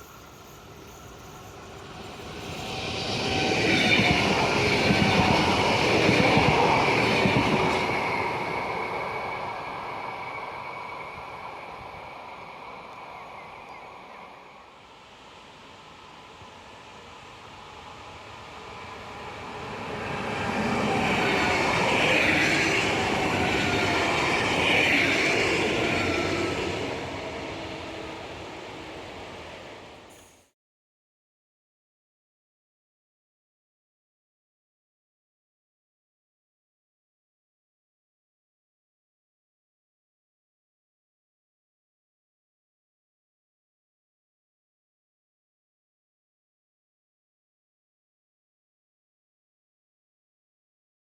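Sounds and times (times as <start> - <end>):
train wheels on rails: 0.0 - 30.5.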